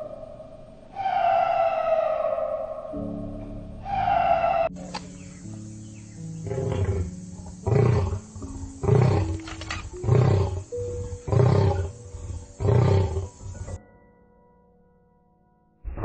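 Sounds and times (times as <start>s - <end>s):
big cat roaring: 6.4s - 13.8s.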